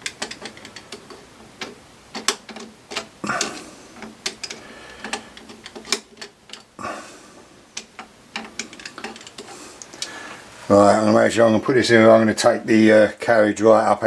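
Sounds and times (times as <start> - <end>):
metallic clicks and clunks: 0.0 - 6.8, 7.7 - 10.1.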